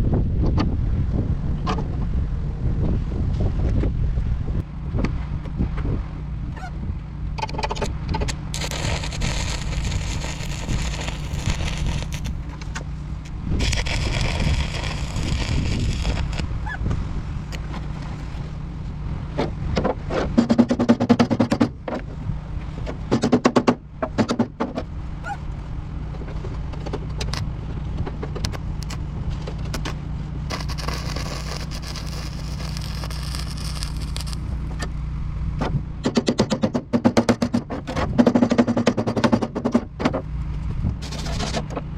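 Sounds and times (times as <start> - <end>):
low machine hum: 4.0 - 20.1, 24.8 - 36.1
arc welding crackling hiss: 8.6 - 12.4, 13.6 - 16.6, 29.8 - 34.6
sharp metal knocks: 36.0 - 40.2.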